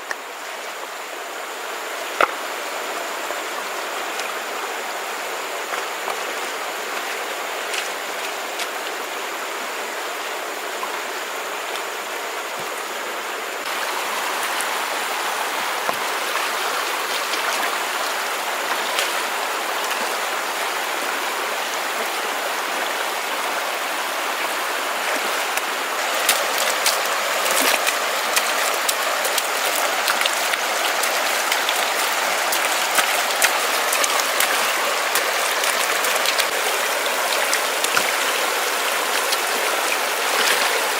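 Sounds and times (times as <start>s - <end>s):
water rushing: 0.0s - 40.9s.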